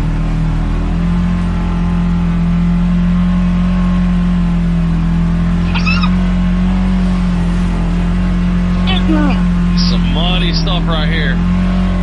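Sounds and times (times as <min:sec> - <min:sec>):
utv engine running: 0:00.0 - 0:12.0
brief high squeak: 0:05.6 - 0:06.2.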